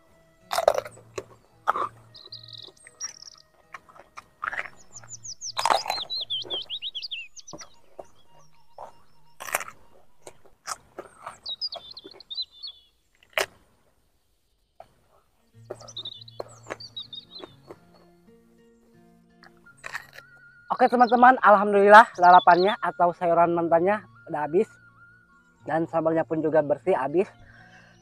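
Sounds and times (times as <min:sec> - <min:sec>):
small birds chirping: 0:00.5 - 0:13.5, 0:14.6 - 0:28.0
crunching raw vegetables: 0:00.5 - 0:13.7, 0:15.6 - 0:18.0, 0:19.4 - 0:20.4.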